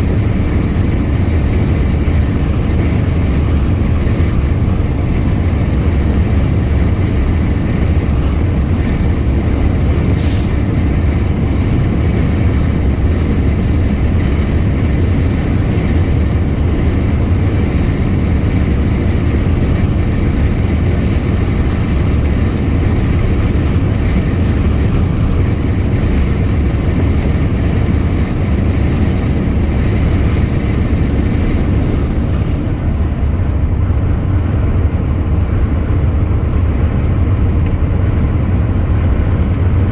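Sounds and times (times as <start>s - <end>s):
truck engine and road noise: 0.0s - 39.9s
brief hiss: 10.2s - 10.6s.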